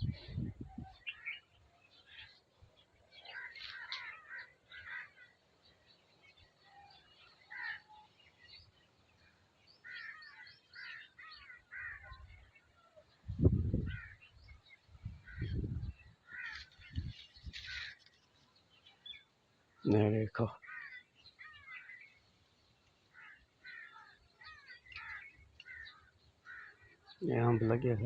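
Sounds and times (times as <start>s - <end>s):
wind buffeting microphone: 0.0s - 1.1s, 13.2s - 17.8s
birds scratchy calls: 3.2s - 5.4s, 16.2s - 18.4s, 23.1s - 27.1s.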